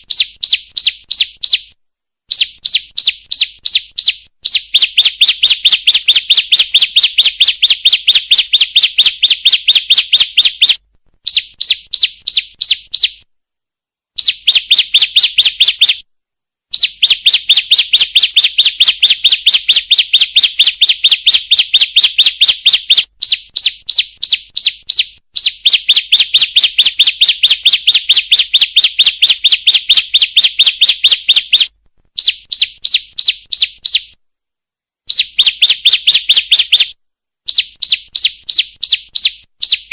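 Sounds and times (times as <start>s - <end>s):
bird rapid high chips: 2.3s - 13.2s, 14.2s - 16.0s, 16.8s - 34.2s, 35.1s - 39.9s.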